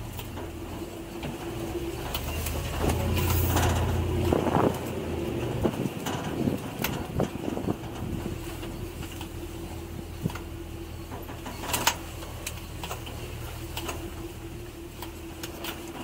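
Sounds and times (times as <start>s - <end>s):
truck engine running: 0.0s - 16.0s
knocks and rattles: 0.2s - 9.3s.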